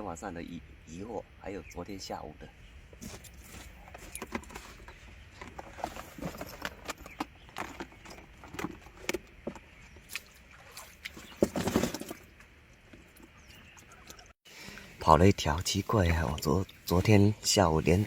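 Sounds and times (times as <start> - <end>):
footsteps crunching: 2.9 - 10.3.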